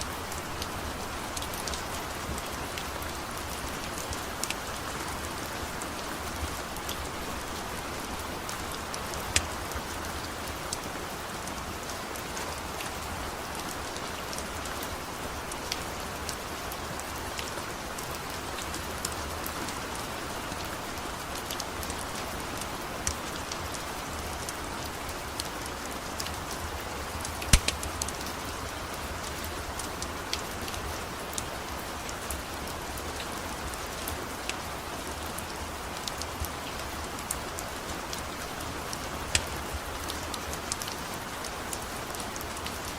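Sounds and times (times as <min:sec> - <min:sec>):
rain hissing: 0:00.0 - 0:31.7, 0:32.6 - 0:42.9
wood fire popping: 0:27.4 - 0:28.2.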